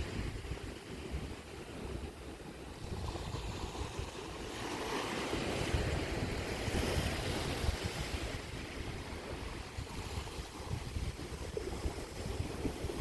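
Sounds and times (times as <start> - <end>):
waves on a rocky shore: 0.0 - 13.0
wind buffeting microphone: 0.0 - 13.0.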